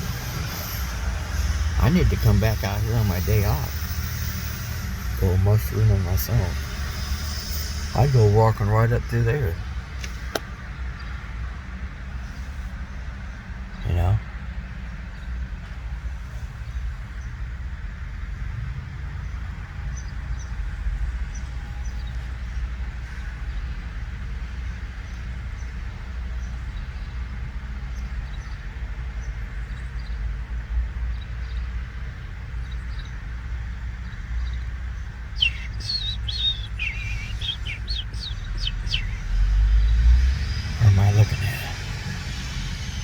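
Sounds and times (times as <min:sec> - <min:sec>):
small birds chirping: 0:00.0 - 0:11.4, 0:20.0 - 0:43.0.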